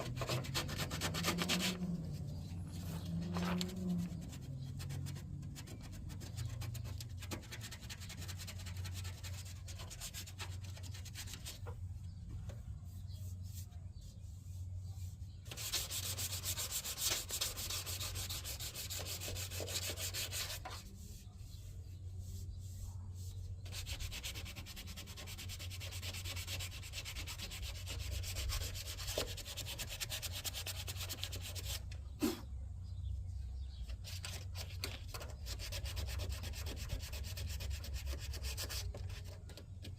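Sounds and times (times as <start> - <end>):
sandpaper rubbing body filler: 0.0 - 11.7, 12.8 - 32.4.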